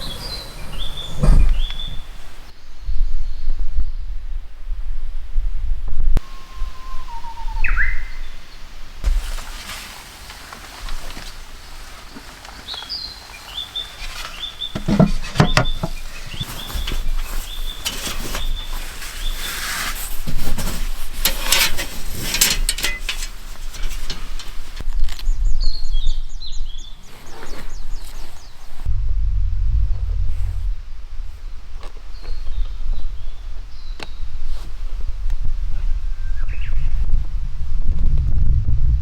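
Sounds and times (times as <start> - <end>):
small birds chirping: 0.0 - 3.6, 6.2 - 8.7, 11.4 - 20.0, 22.8 - 28.9, 32.0 - 34.7
clicks and knocks: 14.8 - 16.4
low rumble: 28.8 - 33.0, 37.2 - 39.0.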